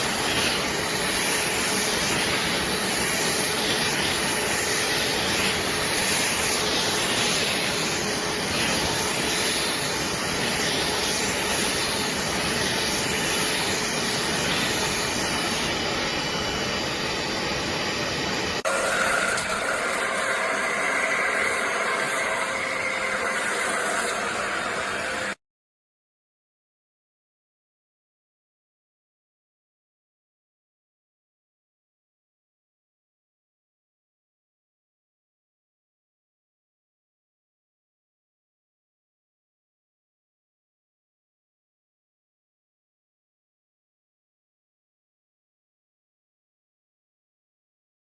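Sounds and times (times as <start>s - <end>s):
carpet cleaner motor and suction: 0.0s - 17.2s, 17.9s - 25.4s.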